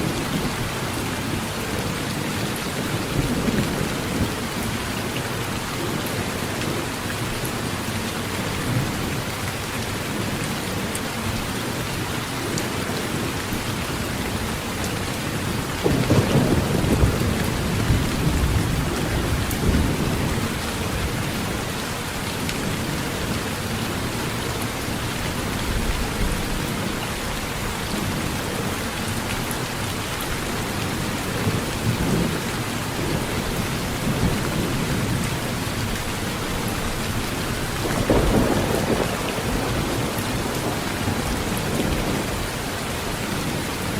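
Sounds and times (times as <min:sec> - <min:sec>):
heavy rain on a metal roof: 0:00.0 - 0:43.9
thunder rumbling: 0:15.8 - 0:21.0, 0:37.6 - 0:42.5.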